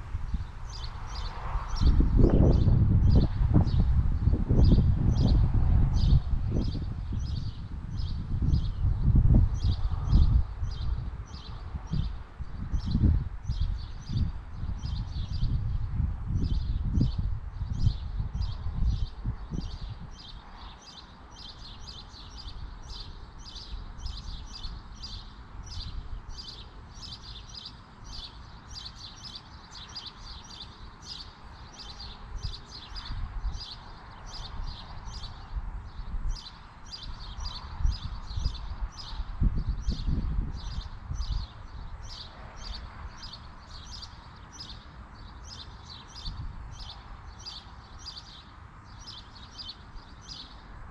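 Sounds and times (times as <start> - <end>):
wind buffeting microphone: 0.0 - 27.1, 32.0 - 44.6, 45.4 - 47.5
small bird chirping: 16.3 - 50.6.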